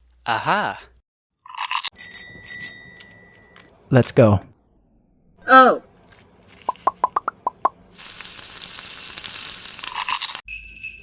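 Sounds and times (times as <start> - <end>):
crackling hiss: 7.9 - 10.4.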